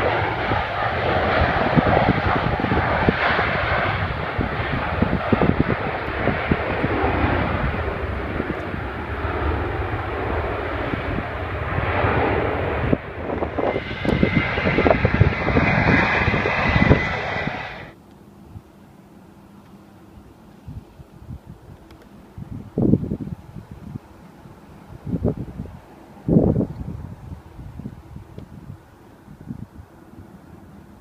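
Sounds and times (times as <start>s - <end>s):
high engine whine: 0.0s - 20.7s
jet airliner engines: 0.0s - 31.0s.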